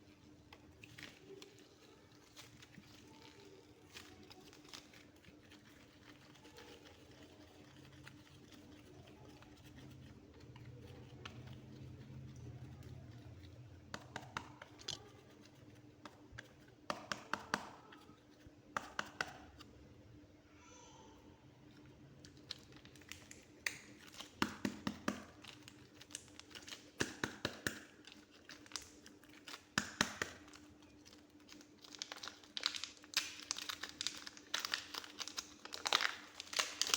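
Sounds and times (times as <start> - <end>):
clay squished by hand: 13.8 - 15.1, 18.7 - 19.7, 22.5 - 31.0.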